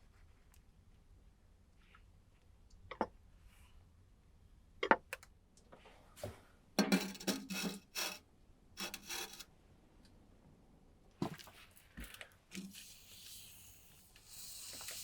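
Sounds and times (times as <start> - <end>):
rough scraping: 6.9 - 8.2, 8.8 - 9.4.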